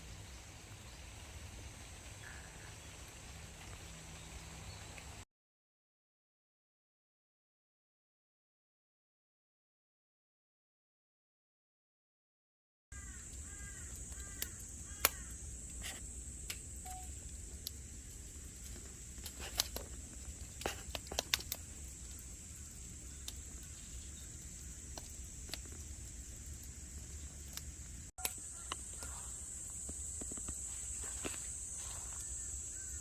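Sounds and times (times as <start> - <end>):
bird calling: 0.0 - 5.2, 13.0 - 15.4, 28.2 - 33.0
sharp clicks: 14.1 - 15.2, 20.6 - 22.2.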